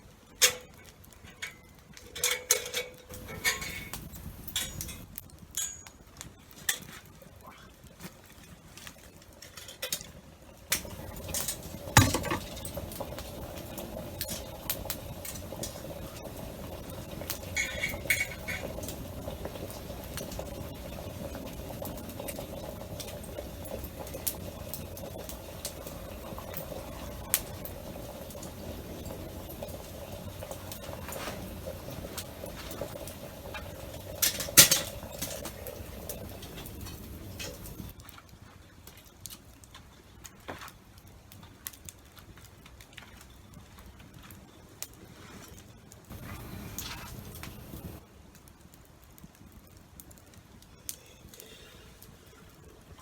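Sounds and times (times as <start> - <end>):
fire crackling pops: 0.1 - 53.0
metallic clatter: 0.4 - 6.0, 10.7 - 37.9
kettle hissing: 2.1 - 5.1, 10.7 - 37.9, 46.1 - 48.0
water dripping: 3.1 - 5.0, 10.7 - 37.9, 46.1 - 48.0.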